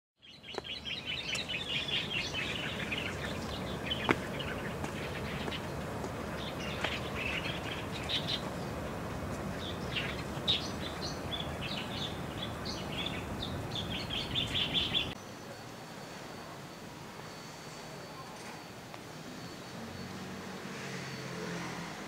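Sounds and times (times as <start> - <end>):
small birds chirping: 0.2 - 15.6.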